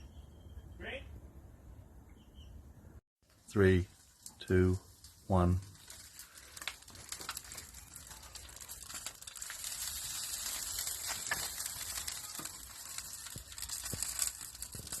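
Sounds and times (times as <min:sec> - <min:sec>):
fat crackling and popping: 0:03.2 - 0:15.0
pork fat sizzling: 0:03.2 - 0:15.0.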